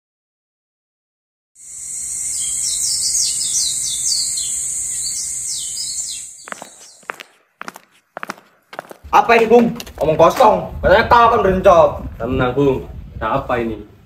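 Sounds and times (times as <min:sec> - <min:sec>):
insects buzzing: 0:01.6 - 0:07.2
bird chirping: 0:01.6 - 0:07.3.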